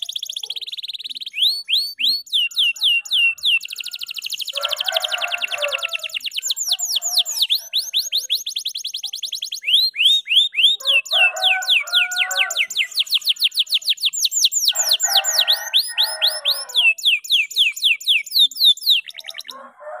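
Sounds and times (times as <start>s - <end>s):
canary singing trills: 0.0s - 19.7s
low buzzy bird chatter: 0.0s - 19.7s.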